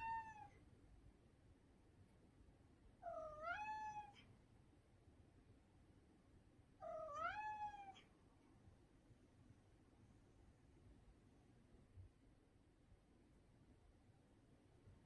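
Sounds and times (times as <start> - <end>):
cat meowing: 0.0 - 0.6, 3.0 - 4.2, 6.8 - 8.1.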